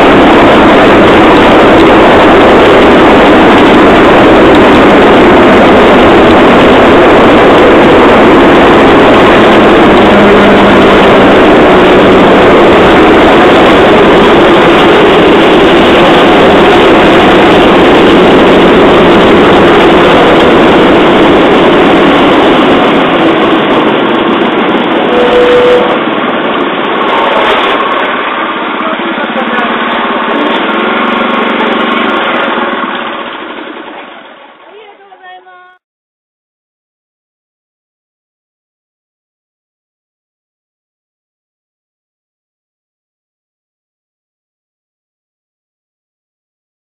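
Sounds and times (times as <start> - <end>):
rail trolley running on track: 0.0 - 35.8.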